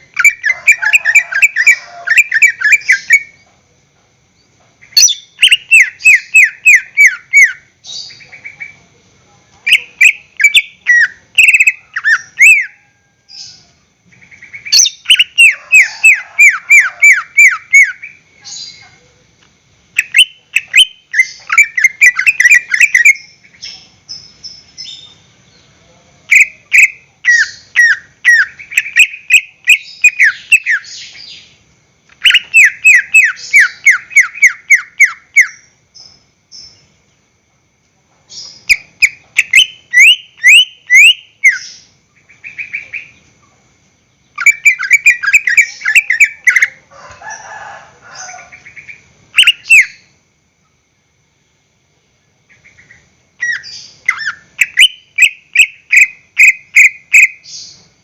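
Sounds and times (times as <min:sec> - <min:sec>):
bird singing chirps and whistles: 0:00.1 - 0:03.4, 0:04.9 - 0:08.3, 0:09.7 - 0:13.6, 0:14.5 - 0:18.8, 0:20.0 - 0:25.2, 0:26.3 - 0:31.5, 0:32.2 - 0:36.8, 0:38.4 - 0:43.2, 0:44.4 - 0:46.7, 0:49.4 - 0:50.1, 0:53.4 - 0:57.8.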